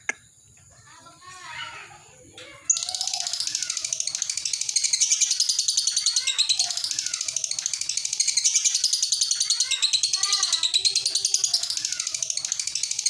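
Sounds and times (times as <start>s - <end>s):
lovebird chattering trill: 2.7s - 13.0s.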